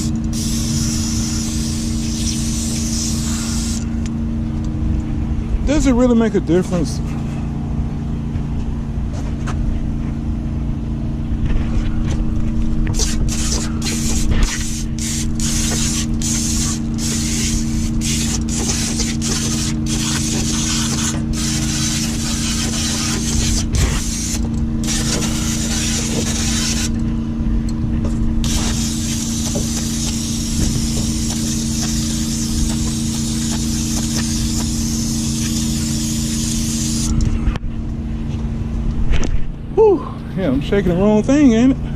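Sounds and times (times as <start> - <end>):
aerosol spray hissing: 0.0 - 3.9, 12.9 - 27.0, 28.4 - 37.1
steady low hum: 0.0 - 41.9.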